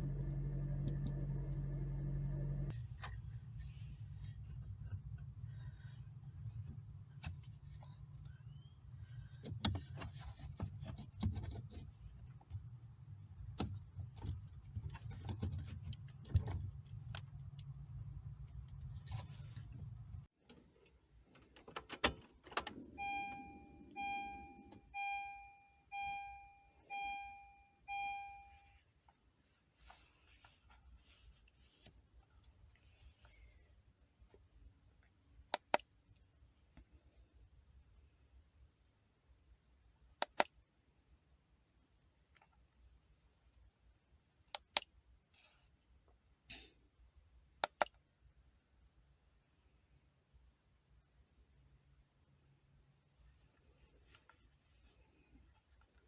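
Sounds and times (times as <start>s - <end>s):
low steady rumble: 0.0s - 20.3s, 22.8s - 28.8s.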